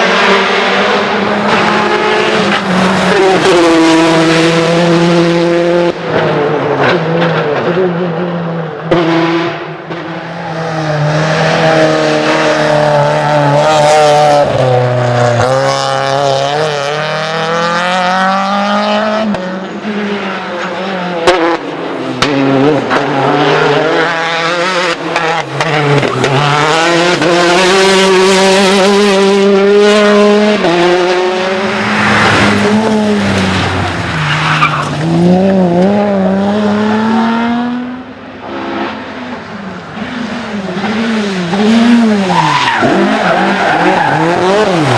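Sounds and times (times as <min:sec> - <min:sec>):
rally car engines revving: 0:00.0 - 0:44.9
tyres skidding: 0:19.7 - 0:44.9.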